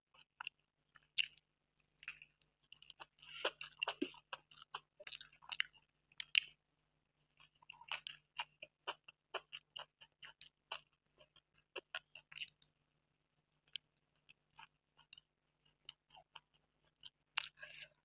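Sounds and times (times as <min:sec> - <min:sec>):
chewing with wet mouth clicks: 0:00.2 - 0:06.6, 0:07.4 - 0:12.7, 0:13.6 - 0:18.0.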